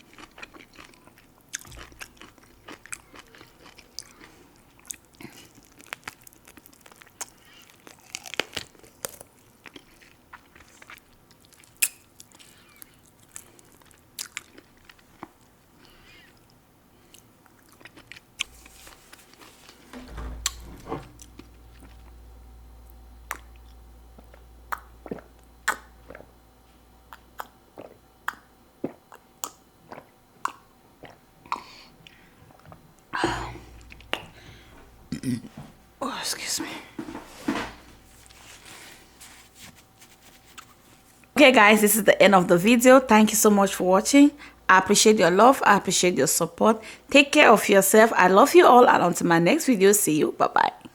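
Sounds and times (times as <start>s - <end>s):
chewing and crunching food: 0.0s - 19.5s, 27.1s - 32.8s
low rumble: 20.0s - 27.0s
mouth clicks: 24.3s - 26.3s, 27.1s - 31.7s.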